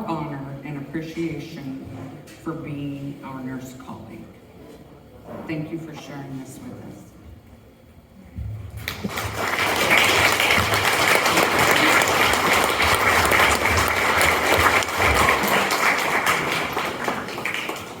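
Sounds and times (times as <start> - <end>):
audience applauding: 8.8 - 18.0.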